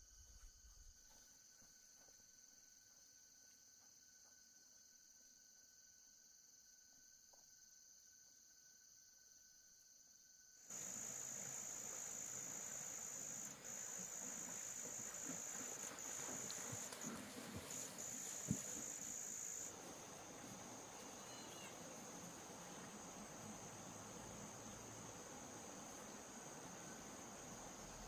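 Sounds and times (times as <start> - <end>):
high insect trill: 10.1 - 28.0.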